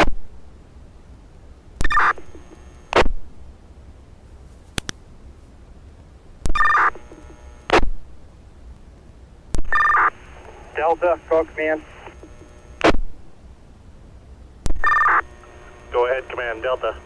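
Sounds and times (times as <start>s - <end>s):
sharp click: 4.7s - 5.0s
radio squelch noise: 9.6s - 13.0s, 14.7s - 17.0s
two-tone radio data beep: 14.8s - 15.3s.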